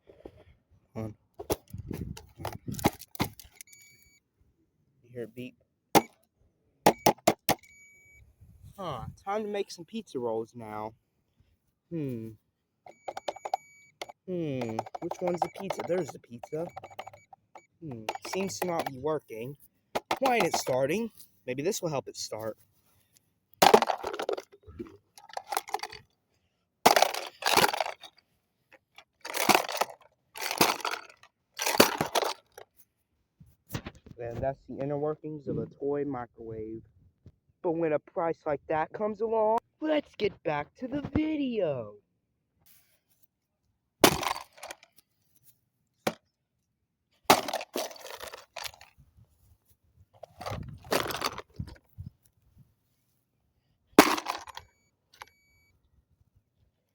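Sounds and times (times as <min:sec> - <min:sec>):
pieces clinking and rattling: 0:14.6 - 0:17.2, 0:18.1 - 0:19.0, 0:20.0 - 0:20.8, 0:23.6 - 0:24.6, 0:25.2 - 0:26.0, 0:26.9 - 0:28.2, 0:29.3 - 0:32.6, 0:44.0 - 0:44.8, 0:47.3 - 0:48.9, 0:54.0 - 0:54.6
hard blows smashing plastic toy: 0:44.0 - 0:44.8.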